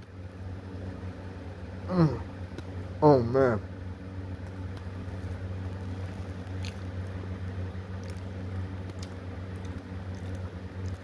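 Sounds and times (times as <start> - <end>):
steady low hum: 0.0 - 11.0
man chewing: 4.5 - 7.2, 7.8 - 11.0.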